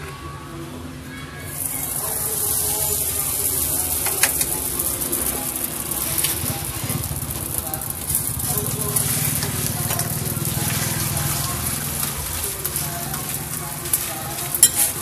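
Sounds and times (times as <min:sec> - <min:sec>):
dough sizzling on a griddle: 0:01.5 - 0:15.0.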